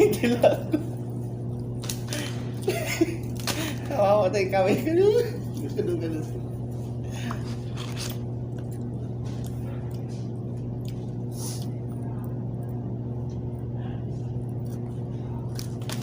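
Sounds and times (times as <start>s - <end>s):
low mechanical hum: 0.0s - 16.0s
rustling or chewing noises: 5.4s - 12.8s.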